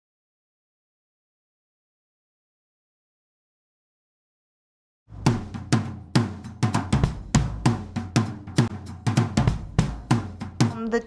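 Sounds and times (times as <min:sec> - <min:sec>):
low bass line: 0:05.1 - 0:05.6
drum kit beat: 0:05.1 - 0:11.0.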